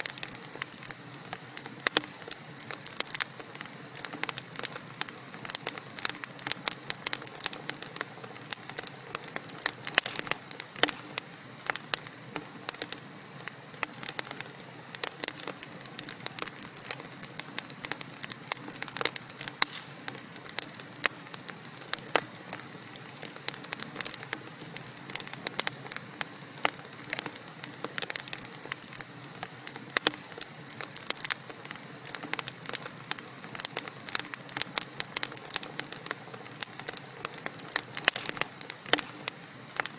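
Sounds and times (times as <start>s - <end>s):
fire hissing: 0.0s - 39.9s
wood fire crackling and popping: 0.0s - 39.9s.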